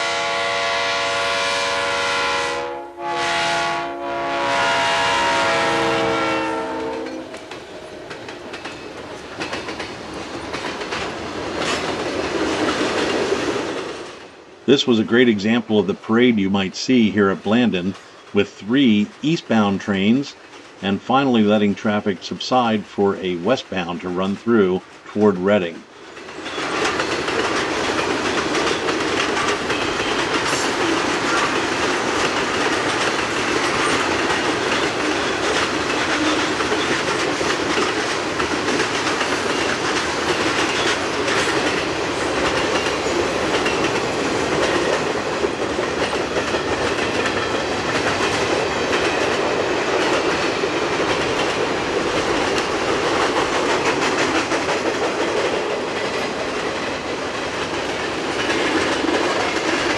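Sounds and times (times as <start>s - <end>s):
freight train rumbling past: 0.0s - 22.2s, 25.7s - 59.9s
wheels clicking over rail joints: 6.5s - 14.3s, 26.0s - 59.9s.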